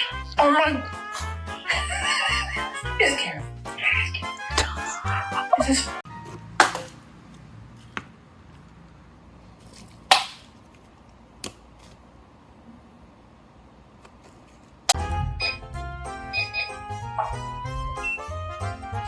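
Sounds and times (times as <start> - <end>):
music: 0.0 - 6.6, 15.0 - 19.0.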